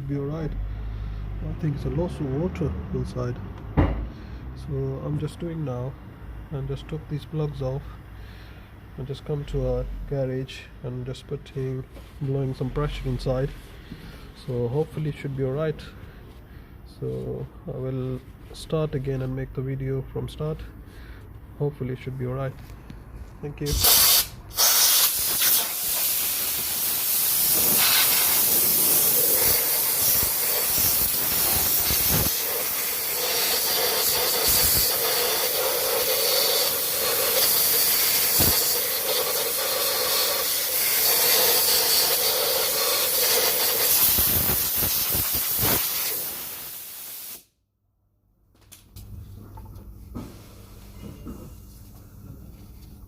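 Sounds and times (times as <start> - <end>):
compressed air blow gun hissing: 23.7 - 47.5.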